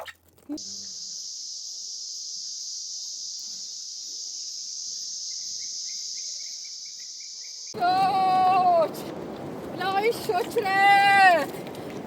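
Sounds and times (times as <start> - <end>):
insects chirring: 0.5 - 7.8.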